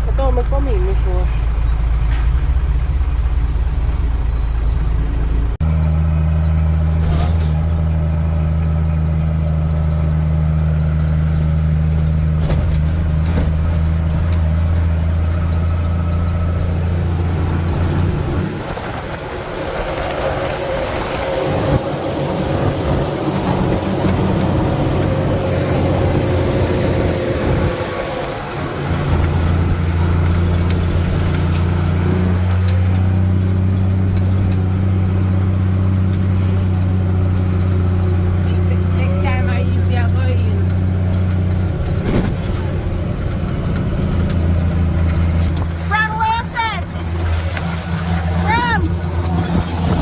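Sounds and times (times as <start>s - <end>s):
truck engine running: 0.0s - 50.0s.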